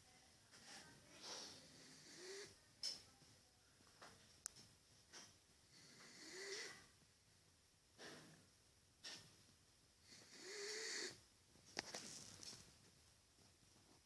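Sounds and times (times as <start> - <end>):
dog snoring with whistle: 1.4 - 2.6, 5.8 - 6.9, 10.1 - 11.2.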